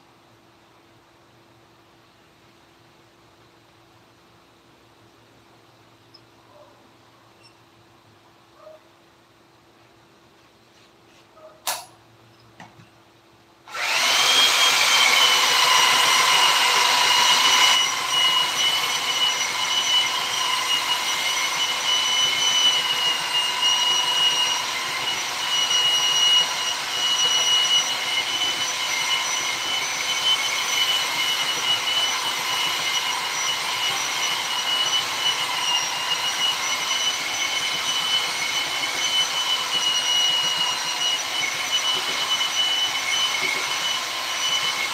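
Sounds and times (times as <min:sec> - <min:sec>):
sharp click: 0:11.6 - 0:12.0
power tool whining: 0:13.7 - 0:44.9.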